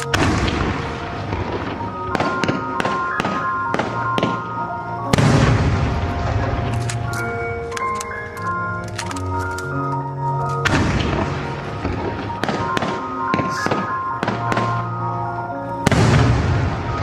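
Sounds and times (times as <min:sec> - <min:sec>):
fireworks cracking: 0:00.0 - 0:17.0
music: 0:00.0 - 0:17.0
fireworks boom: 0:00.2 - 0:04.4, 0:05.1 - 0:06.7, 0:15.9 - 0:17.0.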